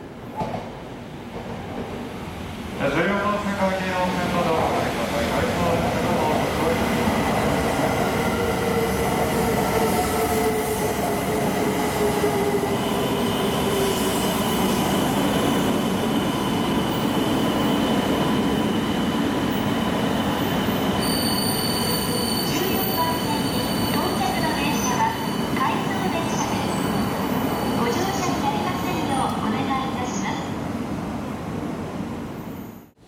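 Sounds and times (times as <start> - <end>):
high thin squeal: 21.0 - 24.2.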